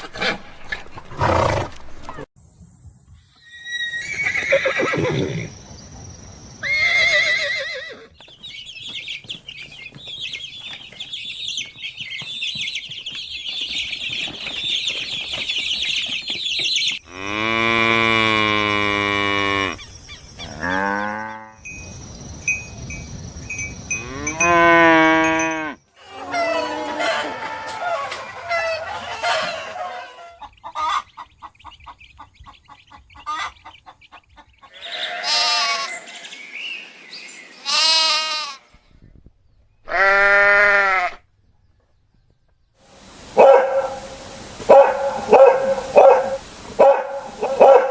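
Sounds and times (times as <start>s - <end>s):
dense high chirping: 19.7s - 25.9s.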